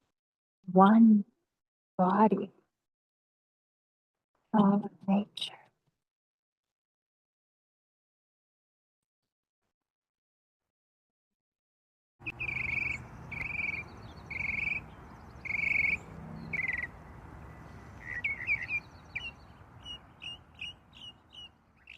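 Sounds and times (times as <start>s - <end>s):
birds calling: 12.2s - 21.9s
short bird chirps: 12.2s - 21.9s
steady low background noise: 12.2s - 21.9s.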